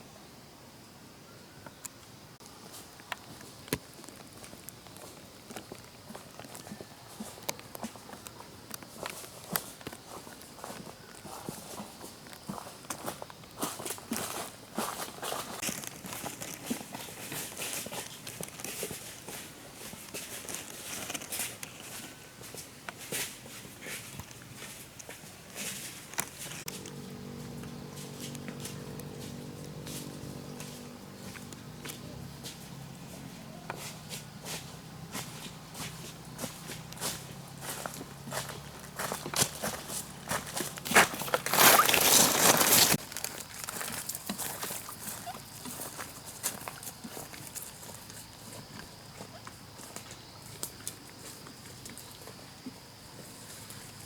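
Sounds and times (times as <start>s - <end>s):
rustling in dry leaves: 13.7s - 46.5s.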